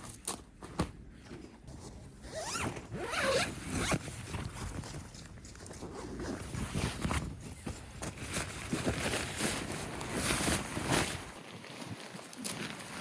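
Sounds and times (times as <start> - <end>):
zipper being pulled: 2.2 - 4.0
handling rustles and clicks: 3.7 - 13.0.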